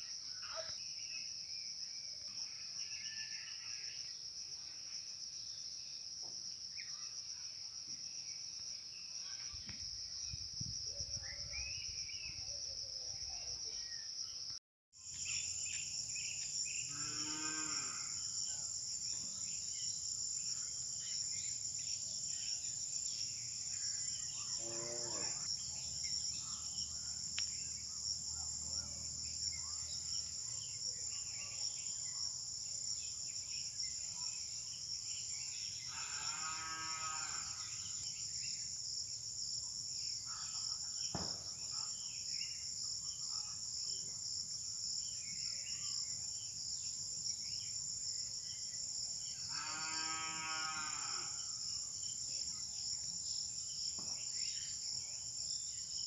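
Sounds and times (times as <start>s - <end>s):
insects chirping: 0.0s - 56.0s
cow mooing: 16.9s - 18.2s, 24.6s - 25.5s, 49.5s - 51.3s.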